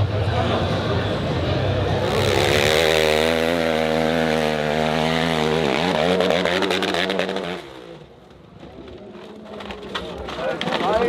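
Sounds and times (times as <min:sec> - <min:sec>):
dirt bike engine revving: 0:01.9 - 0:08.0.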